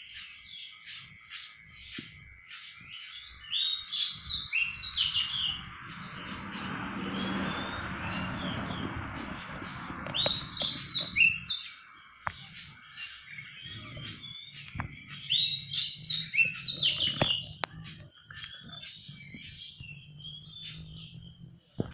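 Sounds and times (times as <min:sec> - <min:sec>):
songbird chirping: 0:00.0 - 0:21.9.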